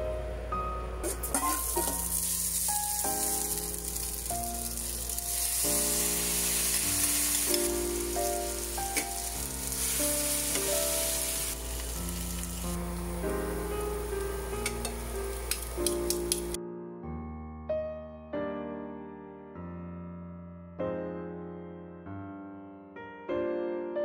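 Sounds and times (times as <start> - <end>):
food sizzling in a frying pan: 1.2 - 16.6.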